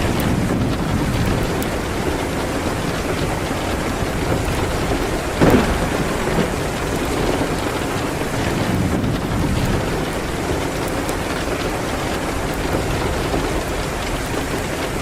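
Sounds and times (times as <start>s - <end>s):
rain on a window: 0.0s - 15.0s
wood fire crackling: 0.0s - 15.0s
sharp fire pop: 5.4s - 7.4s.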